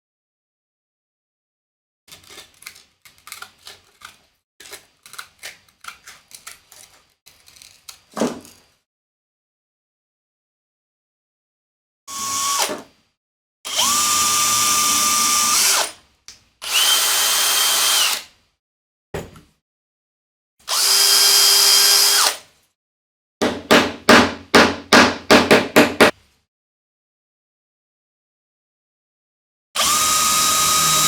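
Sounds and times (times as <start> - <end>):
power drill whining: 12.1 - 12.8, 13.7 - 16.0, 16.6 - 18.3, 20.7 - 22.4, 29.8 - 31.0.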